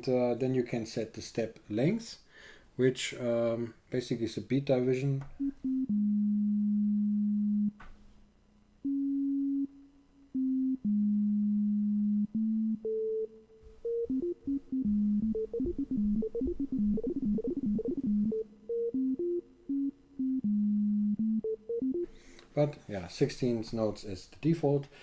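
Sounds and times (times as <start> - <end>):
synthesizer sequenced notes: 5.4 - 7.9, 8.8 - 22.7.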